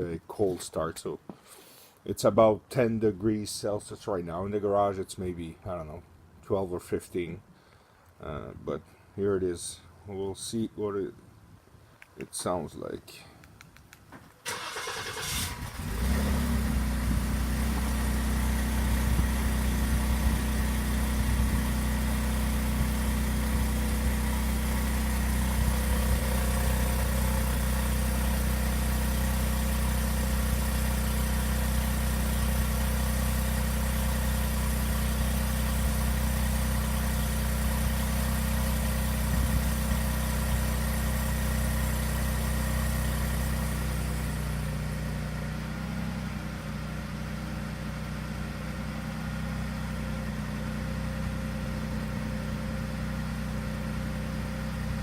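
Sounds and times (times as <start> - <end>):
starter motor cranking: 14.5 - 16.2
car engine idling: 14.5 - 55.0.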